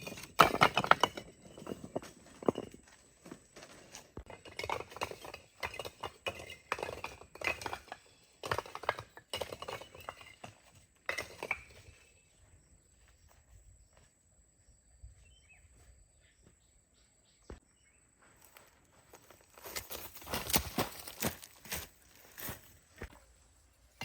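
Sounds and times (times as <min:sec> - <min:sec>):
knocks scrapes and clinks: 0:00.0 - 0:12.3.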